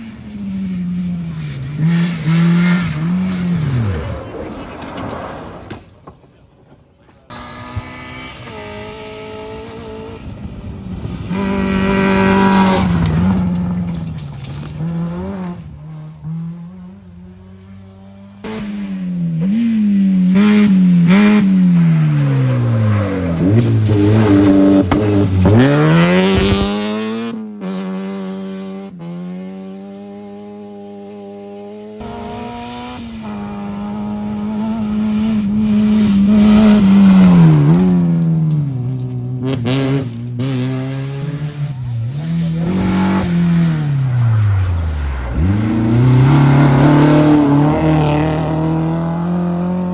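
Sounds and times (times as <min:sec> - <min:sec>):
rally car engines revving: 0:00.0 - 0:06.2, 0:07.1 - 0:49.9.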